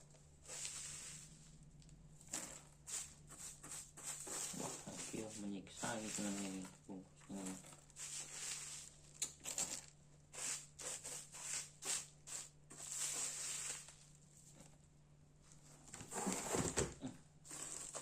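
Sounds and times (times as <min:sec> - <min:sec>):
packaging rustling: 0:17.5 - 0:18.0.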